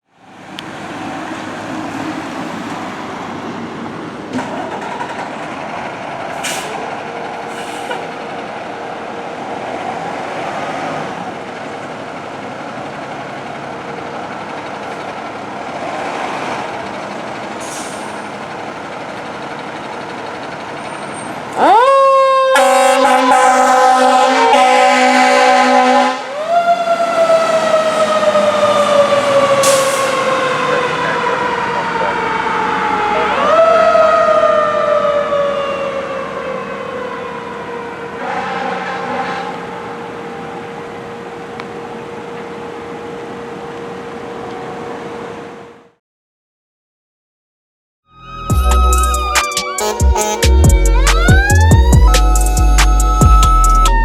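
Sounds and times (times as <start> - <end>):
traffic noise: 0.0 - 46.0, 48.4 - 54.0
air horns blasting: 21.6 - 26.4, 38.2 - 39.6, 48.2 - 54.0
mechanical siren wailing: 21.6 - 40.9, 48.1 - 54.0
steady underlying tone: 48.2 - 54.0.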